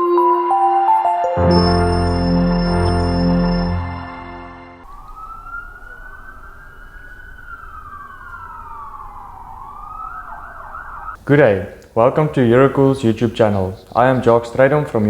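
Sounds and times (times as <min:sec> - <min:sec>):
intro music: 0:00.0 - 0:04.8
emergency siren wailing: 0:01.4 - 0:11.2.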